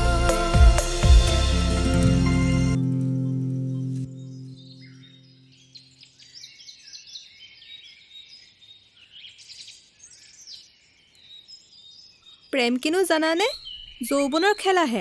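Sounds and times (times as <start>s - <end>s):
soft music: 0.0s - 5.7s
birds chirping and singing: 3.1s - 15.0s.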